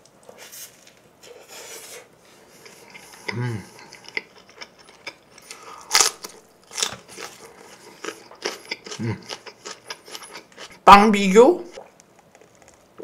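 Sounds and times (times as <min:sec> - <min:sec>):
person humming briefly: 0:03.3 - 0:03.8
wet chewing with clicks: 0:11.7 - 0:13.0.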